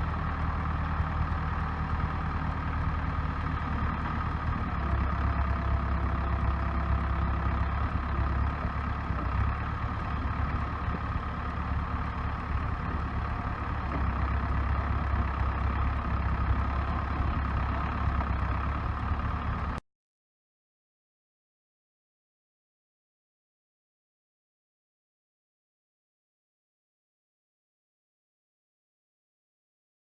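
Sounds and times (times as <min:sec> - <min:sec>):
diesel engine humming: 0:00.0 - 0:19.8.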